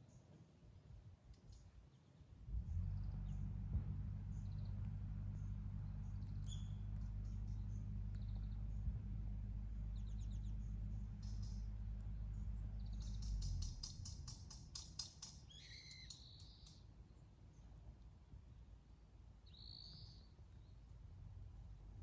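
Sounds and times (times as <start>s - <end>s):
low rumble: 2.5s - 14.8s
high ticking bird calls: 4.3s - 8.9s, 9.8s - 16.9s, 19.4s - 20.8s.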